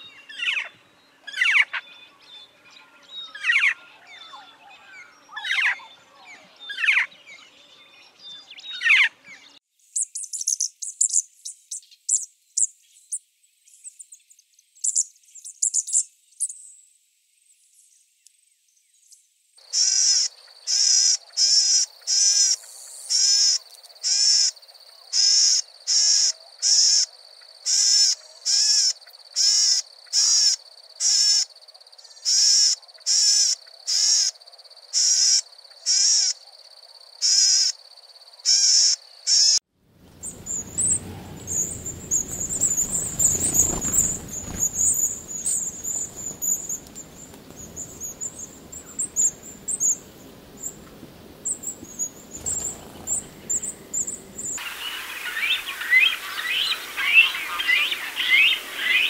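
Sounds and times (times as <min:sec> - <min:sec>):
background hiss: 0:15.2 - 0:59.0
bird buzzy call: 0:19.7 - 0:24.6, 0:38.5 - 0:50.8
thin high bird calls: 0:38.5 - 0:50.8, 0:51.4 - 0:59.0.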